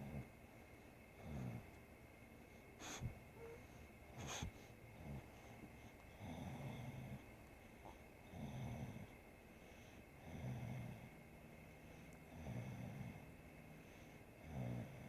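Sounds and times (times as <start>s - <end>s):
dog snoring: 1.2s - 1.7s, 2.8s - 11.2s, 11.9s - 15.0s.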